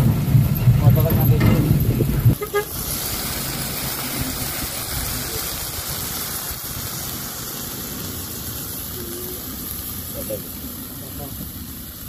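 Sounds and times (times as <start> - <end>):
fern shoots sizzling in a wok: 2.3 - 12.0.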